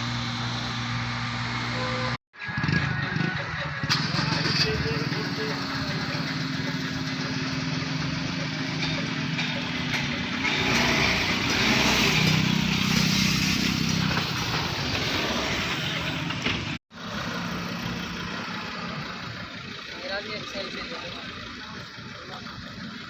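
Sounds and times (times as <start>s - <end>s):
motor running steadily: 0.0s - 2.2s
hiss: 12.6s - 14.4s.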